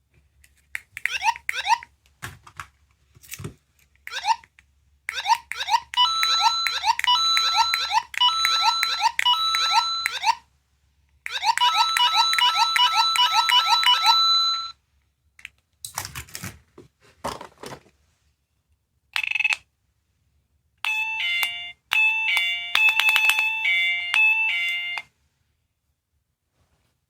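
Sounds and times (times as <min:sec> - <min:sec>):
electronic toy alarm chirp: 0:05.1 - 0:10.4, 0:11.3 - 0:14.8, 0:20.9 - 0:25.1
two-tone electronic chime: 0:11.5 - 0:14.7
toy clicks when handled: 0:22.3 - 0:23.6.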